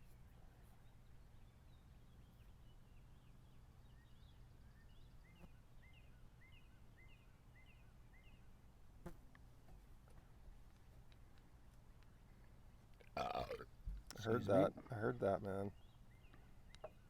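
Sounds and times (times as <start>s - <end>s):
bird chirping faintly: 0.0s - 8.6s, 14.0s - 17.0s.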